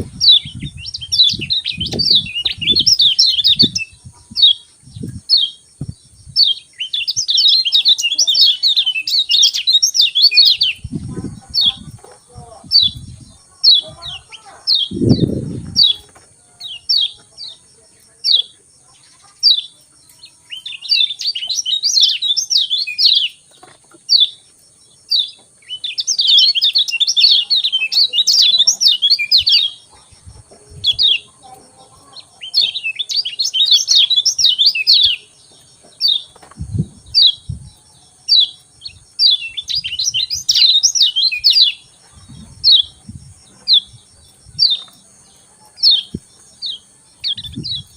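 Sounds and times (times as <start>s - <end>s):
dull low thumps: 0.0s - 2.9s, 3.6s - 6.4s, 10.8s - 13.4s, 14.9s - 16.0s, 36.6s - 37.8s, 42.2s - 44.6s
fast high twittering song: 0.0s - 17.2s.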